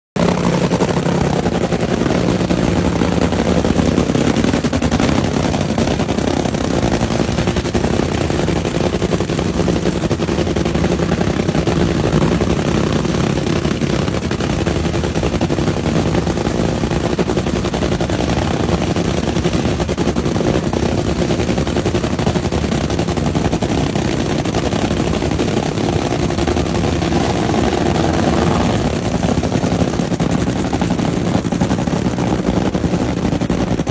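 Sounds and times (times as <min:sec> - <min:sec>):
racing car engine idling loudly: 0:00.2 - 0:33.9.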